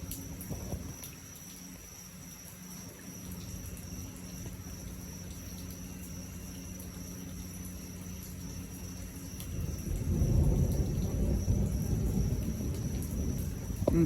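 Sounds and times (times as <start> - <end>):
crickets trilling: 0.0 - 14.0
low steady hum: 0.0 - 14.0
faint low rumble: 9.3 - 14.0.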